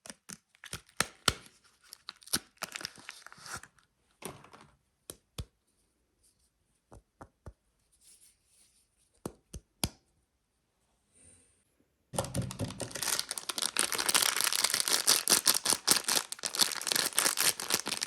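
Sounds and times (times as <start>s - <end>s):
wrapping crinkling: 0.5s - 3.8s, 12.2s - 18.0s.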